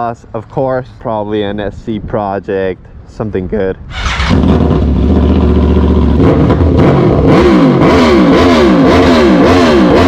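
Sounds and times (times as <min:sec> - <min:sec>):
motorcycle engine revving: 0:03.9 - 0:10.0.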